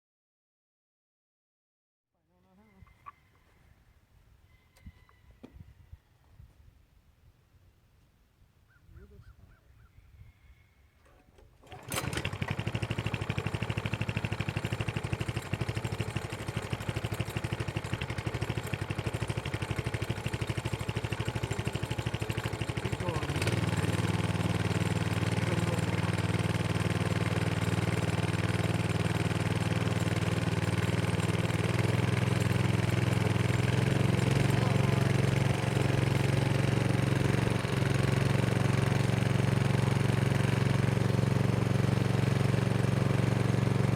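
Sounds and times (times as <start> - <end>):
diesel generator running: 11.4 - 43.9.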